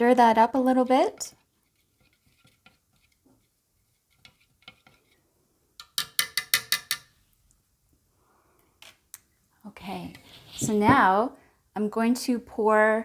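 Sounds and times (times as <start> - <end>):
stir stick stirring paint: 0.6 - 7.4, 10.0 - 11.1.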